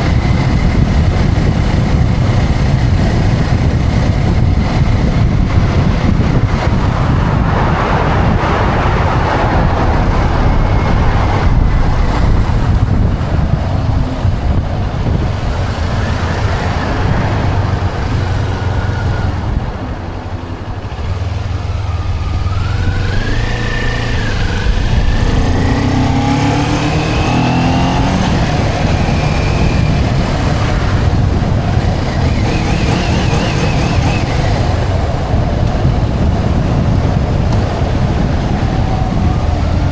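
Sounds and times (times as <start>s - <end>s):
motorcycle engine running: 0.0s - 39.9s
wind rush over microphone: 0.0s - 39.9s.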